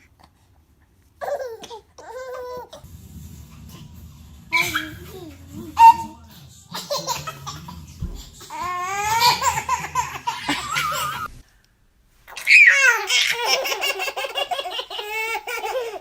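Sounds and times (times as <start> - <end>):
baby laughing: 4.5 - 11.3, 12.3 - 16.0.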